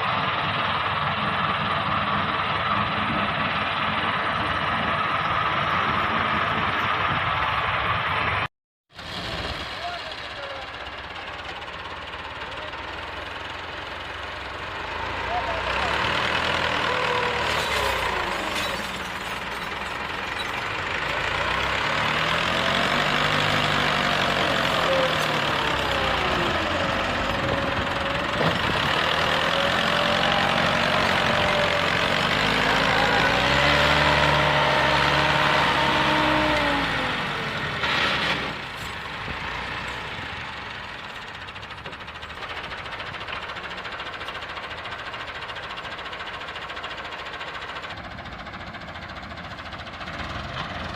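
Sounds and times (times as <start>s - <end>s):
tractor diesel engine revving: 0.0s - 50.9s.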